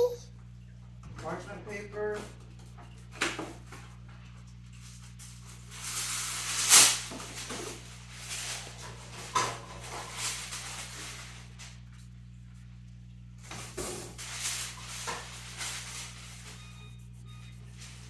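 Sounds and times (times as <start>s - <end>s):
paper crinkling rustle: 4.7s - 12.1s, 14.1s - 18.0s.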